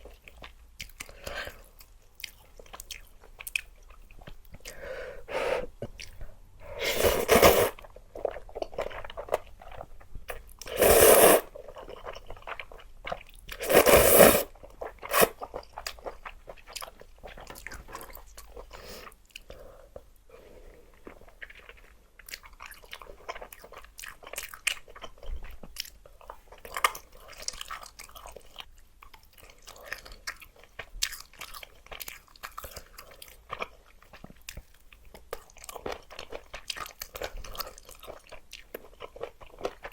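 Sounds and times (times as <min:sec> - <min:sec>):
chewing with wet clicks: 0:00.0 - 0:04.8, 0:05.8 - 0:06.3, 0:11.5 - 0:13.6, 0:14.5 - 0:20.1, 0:21.0 - 0:39.9
loud noodle slurps: 0:06.7 - 0:07.8, 0:10.7 - 0:11.5, 0:13.6 - 0:15.4.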